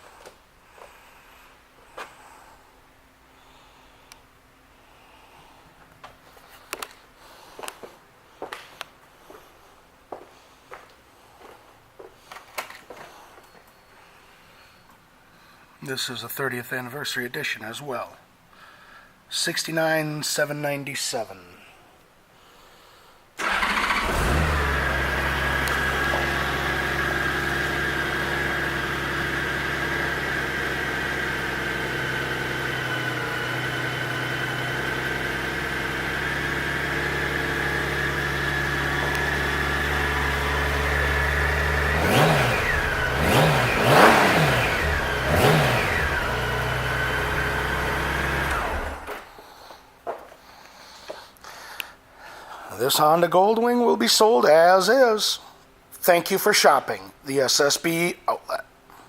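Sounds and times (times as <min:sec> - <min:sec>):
motorcycle engine idling and revving: 0:23.4 - 0:49.3.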